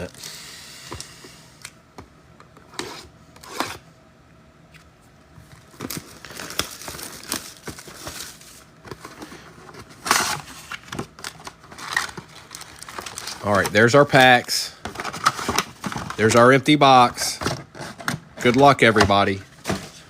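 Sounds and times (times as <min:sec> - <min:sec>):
pack wrappers crinkling: 0:05.6 - 0:09.2, 0:09.9 - 0:16.9.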